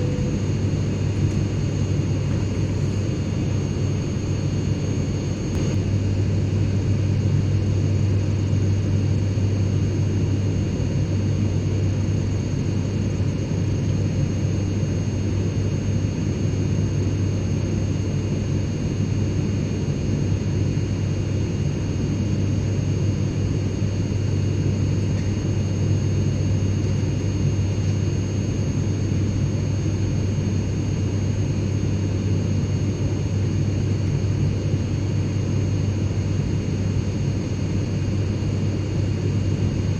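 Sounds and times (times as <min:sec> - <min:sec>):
faint high whines: 0:00.0 - 0:03.6
airliner engine and airflow rumble: 0:00.0 - 0:39.9.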